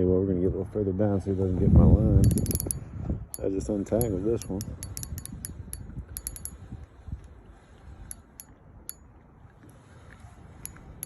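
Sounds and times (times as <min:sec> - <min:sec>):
low wind rumble: 0:00.0 - 0:11.0
fishing reel clicking: 0:02.2 - 0:02.8, 0:03.4 - 0:09.0.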